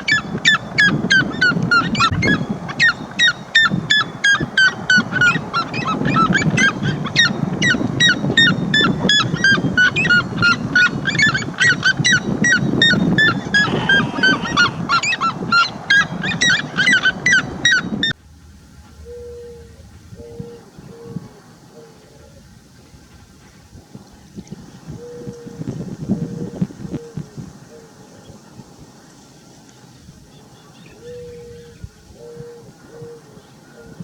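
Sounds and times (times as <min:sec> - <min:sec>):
bird calling rapidly: 0:00.0 - 0:18.1.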